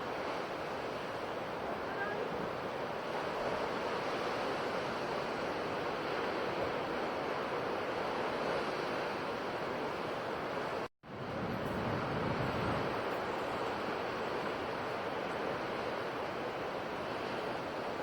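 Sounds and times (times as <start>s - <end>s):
ocean surf washing ashore: 0.0s - 18.0s.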